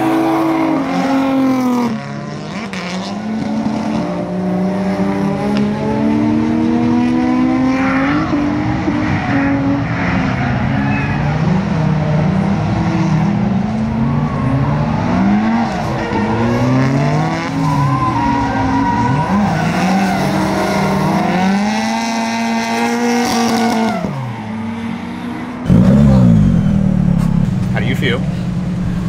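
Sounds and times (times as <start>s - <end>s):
car engine revving: 0.0s - 29.0s
tire squeal: 7.8s - 11.8s, 13.7s - 29.0s.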